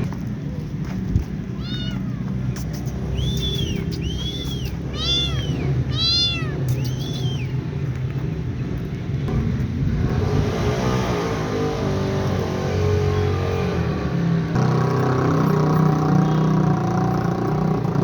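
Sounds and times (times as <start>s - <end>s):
steady low rumble: 0.0s - 11.1s
vehicle engine: 0.0s - 18.0s
kitten meowing: 1.5s - 7.6s.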